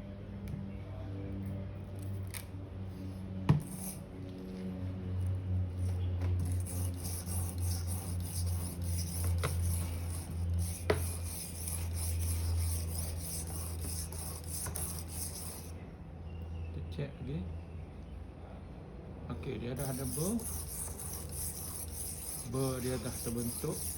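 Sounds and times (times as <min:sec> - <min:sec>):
knife scraping on whetstone: 0:06.4 - 0:15.7, 0:19.8 - 0:23.9.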